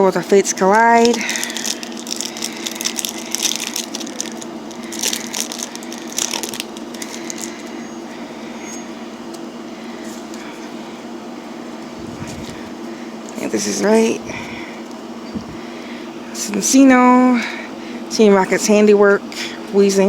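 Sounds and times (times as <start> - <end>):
foil wrapper crinkling and tearing: 1.0 - 8.9.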